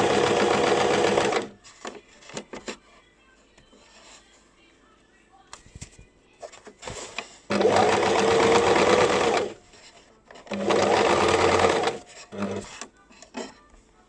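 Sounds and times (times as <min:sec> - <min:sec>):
electric sewing machine stitching: 0:00.0 - 0:01.5, 0:07.5 - 0:09.6, 0:10.5 - 0:12.7.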